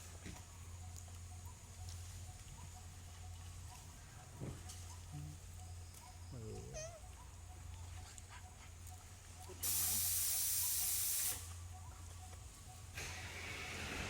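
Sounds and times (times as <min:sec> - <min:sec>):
loud hiss burst: 0:09.6 - 0:11.5.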